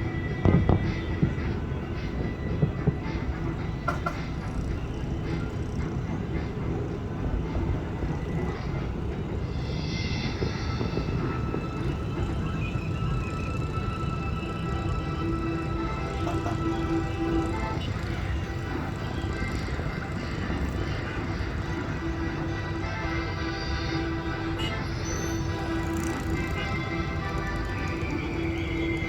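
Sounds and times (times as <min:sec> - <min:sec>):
music on loudspeakers: 0:00.0 - 0:29.0
fireworks booming: 0:00.4 - 0:01.4.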